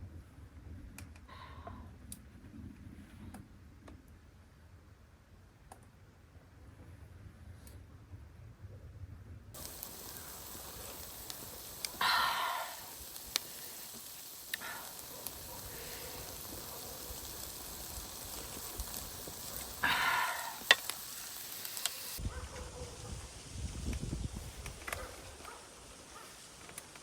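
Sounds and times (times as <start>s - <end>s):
food sizzling in a pan: 9.6s - 27.0s
pops and crackles of frying: 9.6s - 27.0s.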